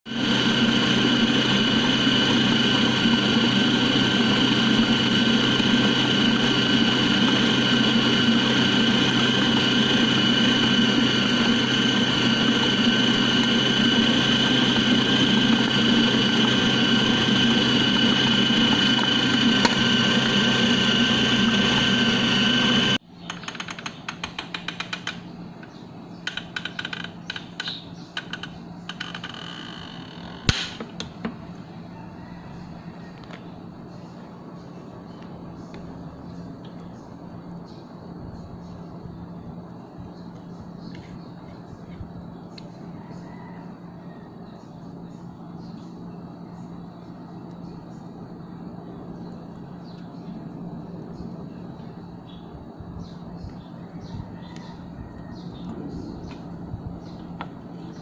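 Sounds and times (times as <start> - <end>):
kitchen appliance motor whining: 0.1 - 25.2, 26.2 - 31.2.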